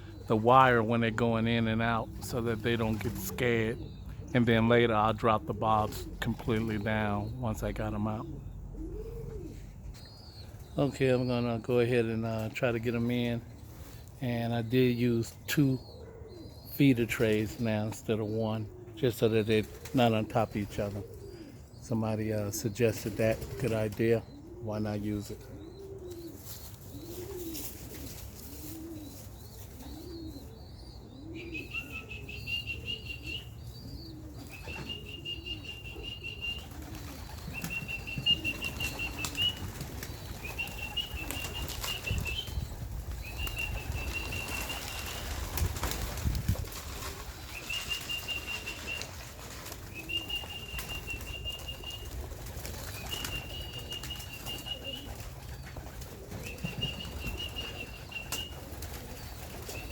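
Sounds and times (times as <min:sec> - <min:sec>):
pigeons cooing: 0:00.0 - 0:59.9
pigeon wings flapping: 0:36.4 - 0:59.9.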